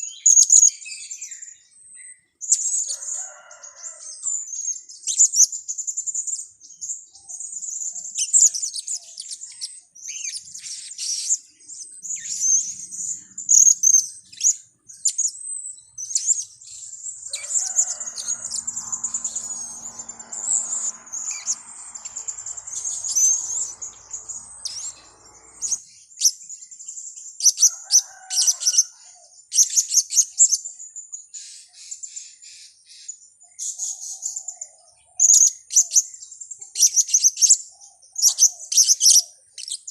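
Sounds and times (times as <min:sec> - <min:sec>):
low rushing noise: 0:17.1 - 0:25.8.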